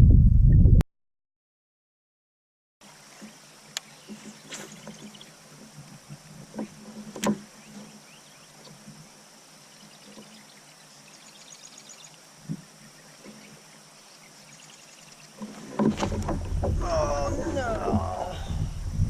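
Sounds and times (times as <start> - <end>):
faint high chirping: 9.6 - 15.4.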